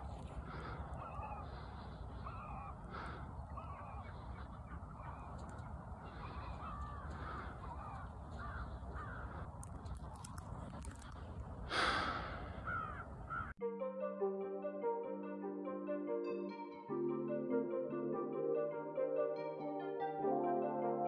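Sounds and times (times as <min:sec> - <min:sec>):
birds honking caws: 0:00.0 - 0:13.6
steady low rumble: 0:00.0 - 0:13.6.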